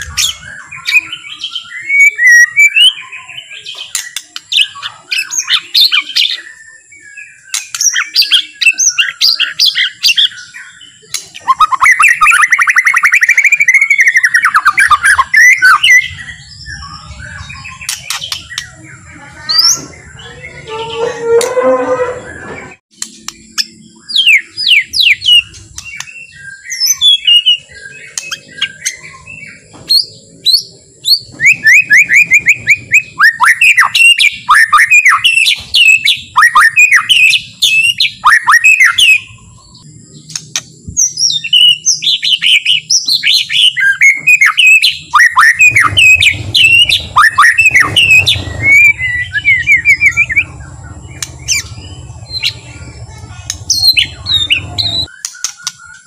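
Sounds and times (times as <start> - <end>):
bird singing whistled song: 0.0 - 21.6, 22.3 - 52.8, 53.7 - 56.0.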